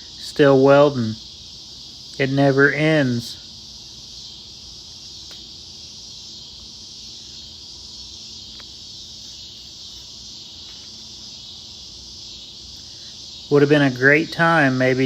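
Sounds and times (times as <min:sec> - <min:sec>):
high-pitched hiss: 0:00.0 - 0:15.0.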